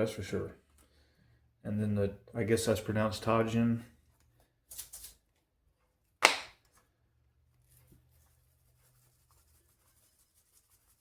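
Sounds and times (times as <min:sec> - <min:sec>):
seasoning shaker rustling: 0:07.6 - 0:11.0.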